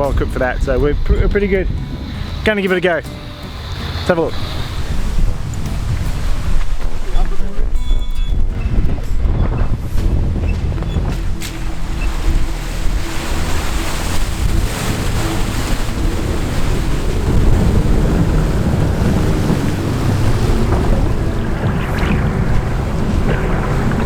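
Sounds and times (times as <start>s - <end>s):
water rushing and splashing: 0.0s - 24.0s
vehicle engine under load: 8.6s - 24.0s.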